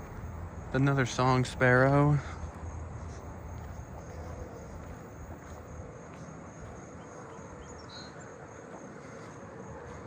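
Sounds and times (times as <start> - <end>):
insects trilling: 0.0 - 10.0
faint bird chirps: 6.7 - 10.0.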